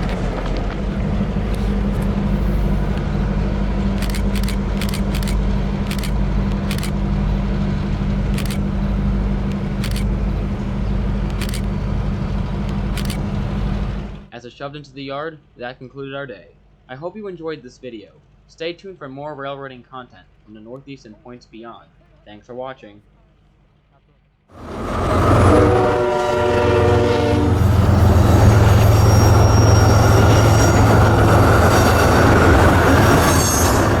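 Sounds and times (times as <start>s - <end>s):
sharp clicks from rolling train: 0.0s - 14.2s, 24.6s - 34.0s
locomotive diesel engine running: 0.0s - 14.3s, 24.6s - 34.0s
rail noise: 0.0s - 14.3s, 24.5s - 34.0s
locomotive horn: 24.6s - 34.0s.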